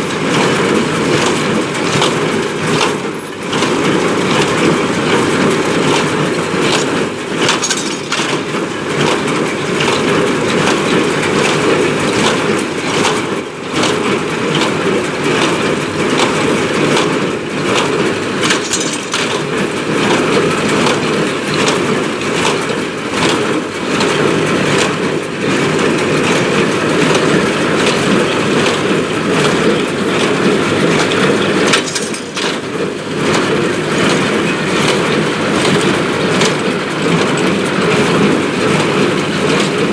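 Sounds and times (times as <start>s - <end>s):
tractor mechanical din: 0.1s - 13.2s, 14.8s - 39.9s
baler knocks and clacks: 4.6s - 11.6s, 17.8s - 23.4s, 29.4s - 37.9s.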